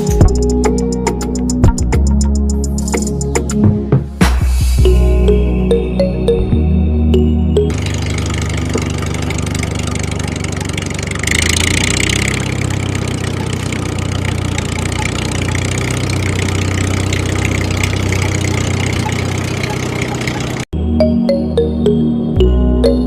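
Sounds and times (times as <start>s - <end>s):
small engine idling: 7.7s - 20.7s.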